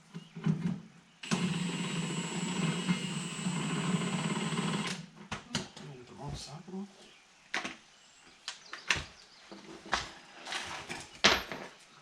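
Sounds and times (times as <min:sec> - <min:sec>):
power tool motor whine: 0:01.2 - 0:05.0.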